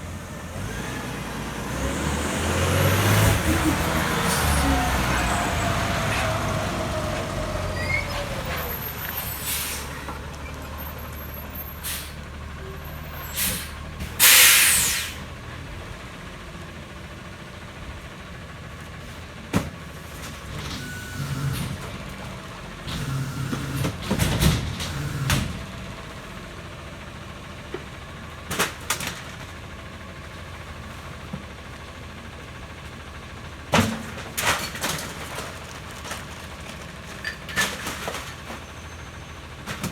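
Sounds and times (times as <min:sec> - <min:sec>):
garbage truck engine running: 0:00.0 - 0:39.9
air brake hiss: 0:09.3 - 0:10.0, 0:11.8 - 0:12.2, 0:13.2 - 0:15.3.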